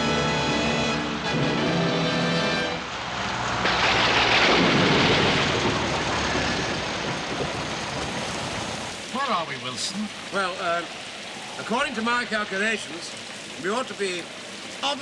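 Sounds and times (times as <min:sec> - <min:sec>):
heavy rain: 0:00.0 - 0:15.0
thunder rumbling: 0:03.4 - 0:09.0.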